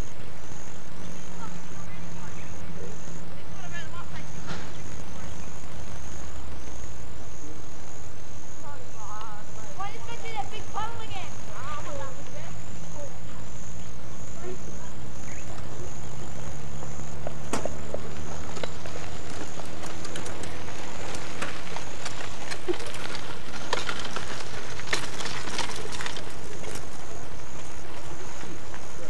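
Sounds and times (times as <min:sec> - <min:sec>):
distant train drone: 0:00.0 - 0:29.0
clicks and rattles: 0:17.5 - 0:27.7.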